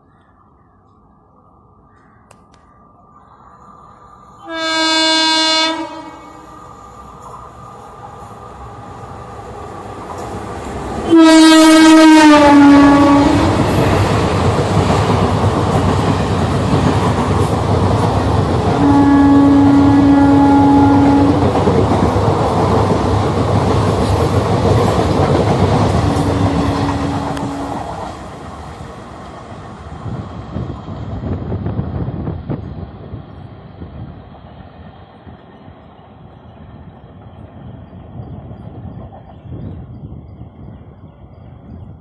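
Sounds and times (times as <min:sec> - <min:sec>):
train horn blasts: 0:04.4 - 0:06.6, 0:11.0 - 0:13.7, 0:18.8 - 0:21.5, 0:26.1 - 0:28.0
train coaches rattling on rails: 0:04.4 - 0:42.0.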